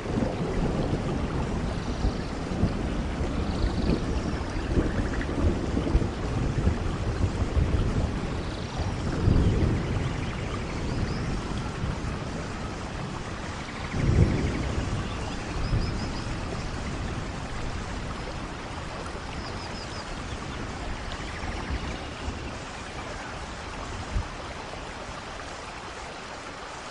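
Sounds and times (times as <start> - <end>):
thunder rumbling: 0.0 - 25.5
steady rain: 0.0 - 26.9.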